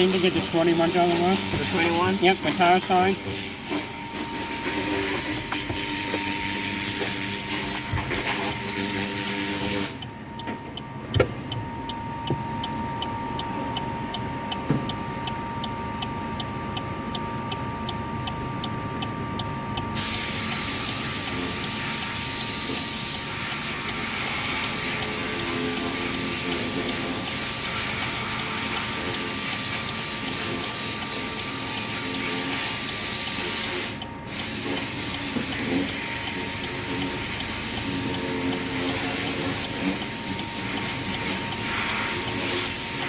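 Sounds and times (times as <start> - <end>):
water spray hissing: 0.0 - 10.0, 20.0 - 43.0
steady regular ticking: 0.0 - 43.0.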